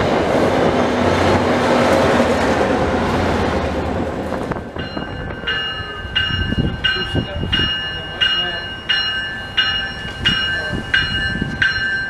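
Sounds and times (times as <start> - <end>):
train wheels rumbling on rails: 0.0 - 12.0
high ringing tones: 4.7 - 12.0.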